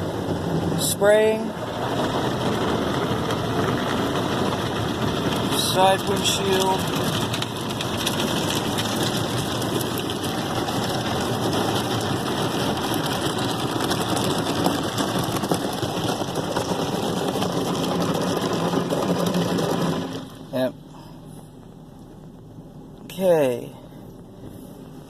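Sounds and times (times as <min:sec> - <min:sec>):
car wash brushes scrubbing: 0:01.6 - 0:20.5.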